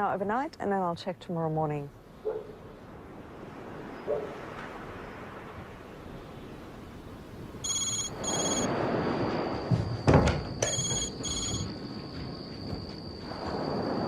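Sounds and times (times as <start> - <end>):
phone ringing: 7.6 - 8.7, 10.6 - 11.8.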